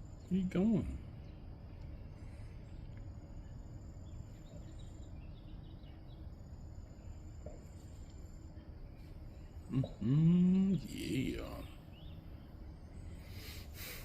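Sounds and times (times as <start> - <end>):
faint bird chirps: 0.0 - 14.0
low background rumble: 0.0 - 14.0.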